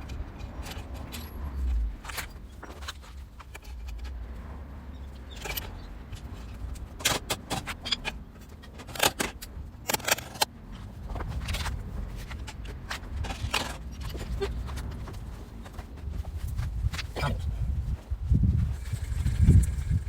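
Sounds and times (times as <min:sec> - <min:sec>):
metal tools clinking: 0:00.0 - 0:04.0, 0:05.0 - 0:10.4
steady low rumble: 0:00.0 - 0:07.0, 0:10.5 - 0:20.0.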